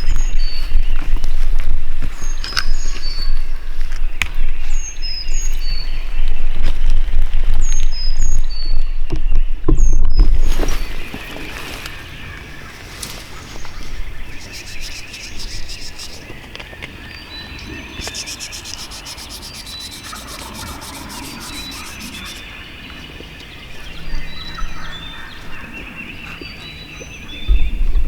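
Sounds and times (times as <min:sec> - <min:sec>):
birds trilling and chirping: 0:07.5 - 0:27.9
rustling and brushing: 0:10.3 - 0:16.3, 0:17.9 - 0:22.4.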